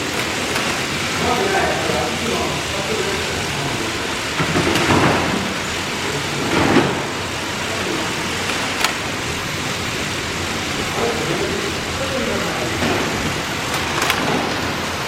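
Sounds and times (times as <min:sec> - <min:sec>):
toy train clacks: 0:00.0 - 0:02.2, 0:04.3 - 0:09.2, 0:11.2 - 0:15.0
toy trains rattling on track: 0:00.0 - 0:15.0.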